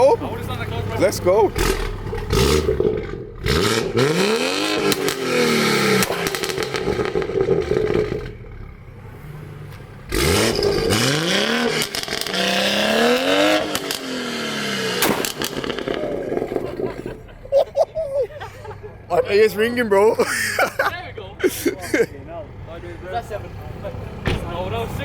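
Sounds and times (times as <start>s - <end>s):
car engine accelerating hard: 0.4s - 17.4s.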